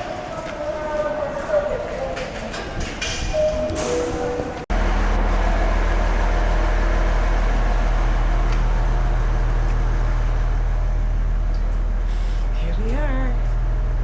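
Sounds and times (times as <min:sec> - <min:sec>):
vehicle engine idling: 0:04.7 - 0:12.6.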